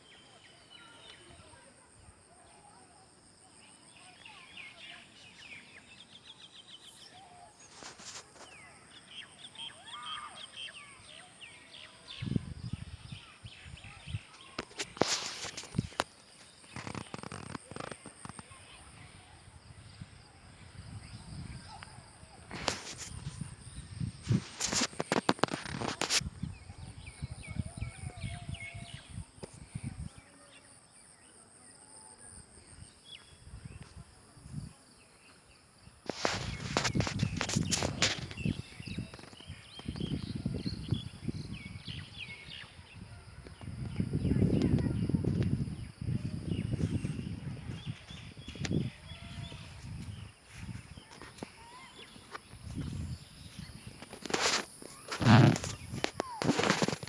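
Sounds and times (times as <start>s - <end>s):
birds chirping: 35.0s - 57.0s.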